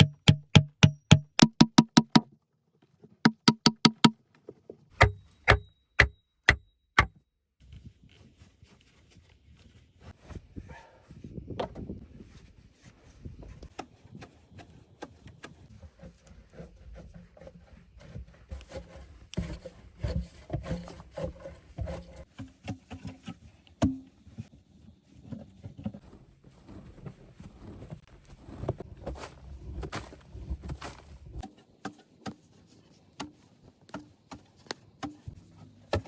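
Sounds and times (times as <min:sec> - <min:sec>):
sharp knock: 0:00.0 - 0:02.2, 0:03.3 - 0:04.1, 0:05.0 - 0:07.2
hand work knocking and scraping: 0:00.0 - 0:02.3, 0:03.3 - 0:04.2, 0:05.0 - 0:07.2, 0:12.8 - 0:24.2, 0:25.4 - 0:36.0.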